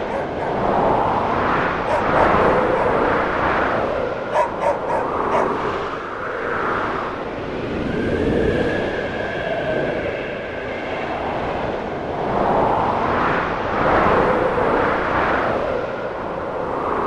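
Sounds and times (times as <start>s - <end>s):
distant dog barking: 0.0s - 1.0s, 1.7s - 3.1s, 4.2s - 5.8s
faint wind whistle: 0.0s - 17.0s
snowstorm wind gusting: 0.0s - 17.0s.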